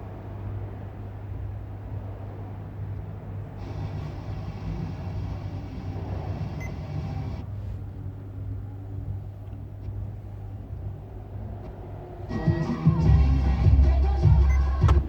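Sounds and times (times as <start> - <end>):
car engine idling: 3.6 - 7.7, 12.3 - 15.0.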